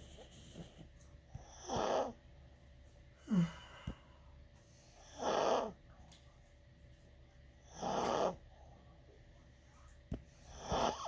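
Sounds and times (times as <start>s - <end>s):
dog snoring: 0.0s - 2.2s, 4.8s - 5.9s, 7.6s - 8.7s, 10.2s - 11.0s.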